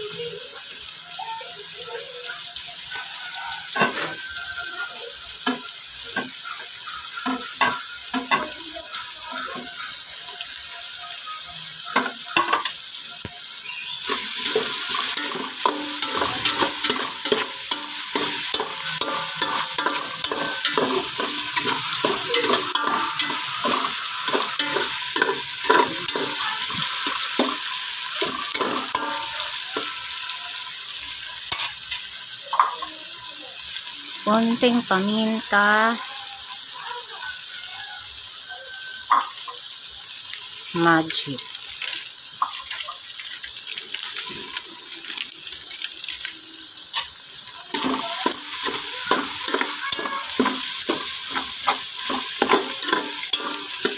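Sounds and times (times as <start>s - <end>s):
meat sizzling in hot oil: 0.0s - 53.9s
spoon scraping and knocking pot: 14.1s - 29.9s, 47.7s - 53.9s.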